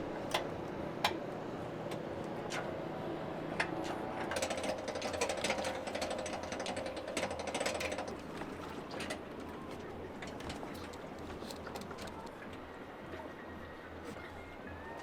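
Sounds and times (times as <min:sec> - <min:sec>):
rapid mechanical clicking: 0:04.3 - 0:09.2.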